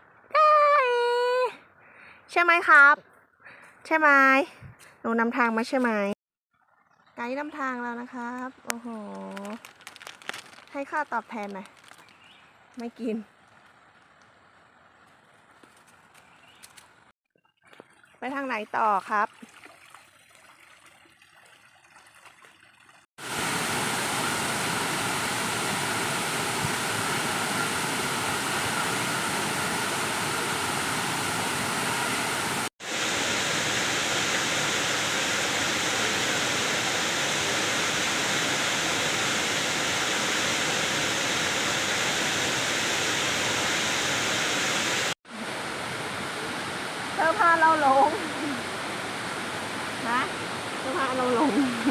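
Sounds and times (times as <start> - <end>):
waterfall rushing: 23.2 - 51.9.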